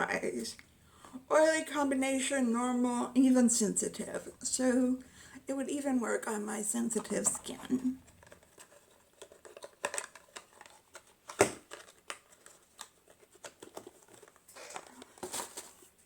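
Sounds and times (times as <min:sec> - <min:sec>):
packaging crinkling and rustling: 0:06.9 - 0:16.0.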